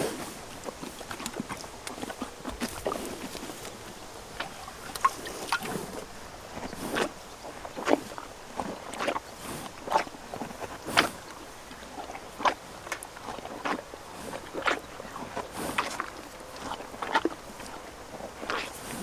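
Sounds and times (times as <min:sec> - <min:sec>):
horse knocks or crunches: 0:00.0 - 0:06.0.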